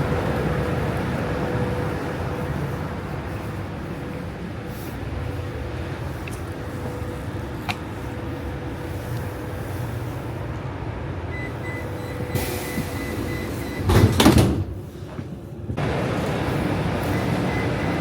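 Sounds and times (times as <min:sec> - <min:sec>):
vehicle low rumble: 0:00.0 - 0:18.0
short loud rush of air: 0:12.3 - 0:13.8
faint high beeping: 0:17.1 - 0:18.0.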